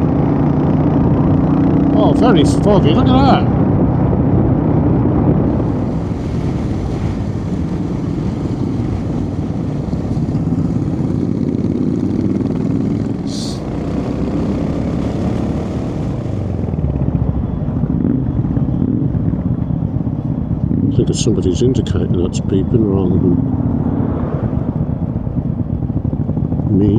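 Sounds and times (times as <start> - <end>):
motorcycle engine running: 0.0 - 20.6
wind and road noise: 0.0 - 26.9.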